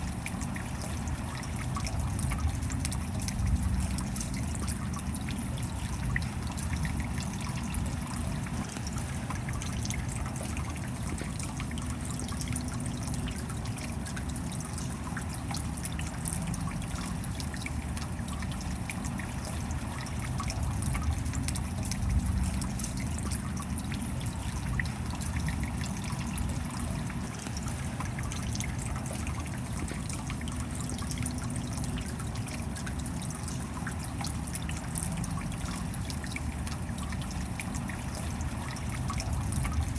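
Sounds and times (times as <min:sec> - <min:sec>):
steady rain: 0:00.0 - 0:39.9
water trickling and dripping: 0:00.0 - 0:39.9.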